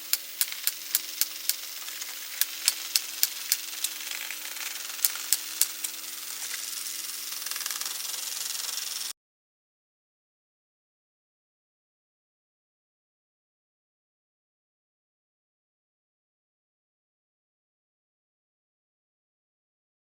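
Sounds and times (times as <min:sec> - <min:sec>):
steady hiss: 0:00.0 - 0:09.1
sharp clicks: 0:00.1 - 0:09.1.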